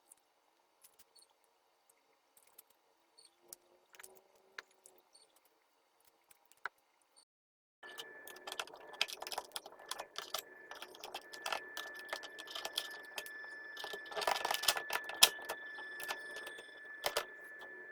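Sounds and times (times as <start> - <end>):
faint high-pitched whine: 7.8 - 17.9
plastic clicks and rattles: 7.9 - 17.3.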